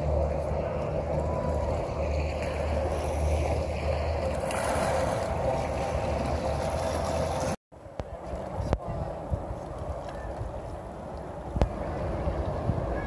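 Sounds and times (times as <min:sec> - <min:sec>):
water rushing past hull: 0:00.0 - 0:07.6
boat engine running: 0:00.0 - 0:13.0
wind: 0:00.0 - 0:13.0.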